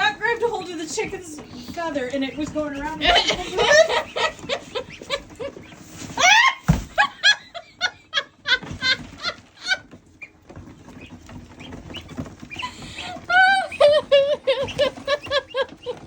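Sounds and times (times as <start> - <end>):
woman laughing: 3.0 - 9.8, 12.6 - 16.0.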